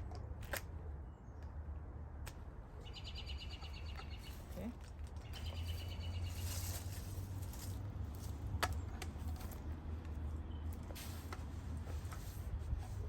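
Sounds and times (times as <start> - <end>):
songbird trilling: 2.8 - 4.6.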